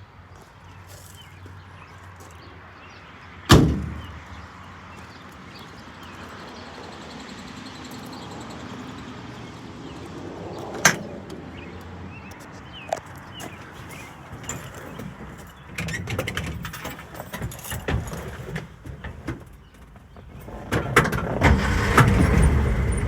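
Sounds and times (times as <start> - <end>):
vehicle door slamming: 3.5 - 4.3.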